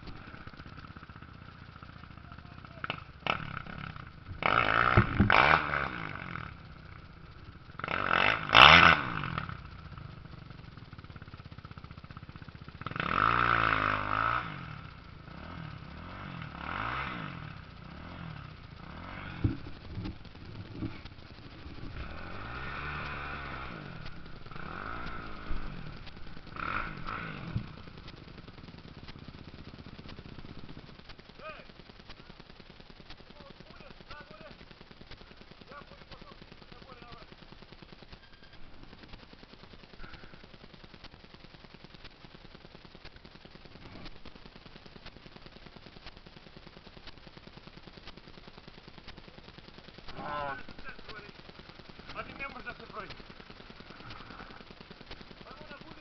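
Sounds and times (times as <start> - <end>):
motocross motorcycles racing past: 0.0 - 7.0, 7.7 - 9.8, 12.8 - 30.7.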